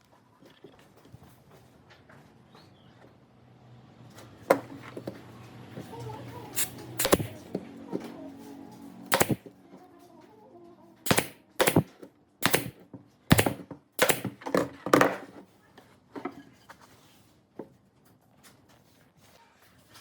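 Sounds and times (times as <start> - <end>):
sharp knocks: 9.1 - 9.5, 11.1 - 14.4.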